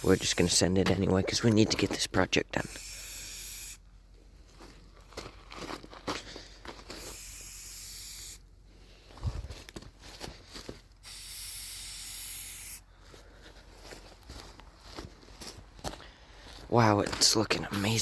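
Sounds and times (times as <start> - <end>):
spray can hissing: 0.0 - 0.6, 2.7 - 3.8, 7.0 - 8.4, 11.0 - 12.8.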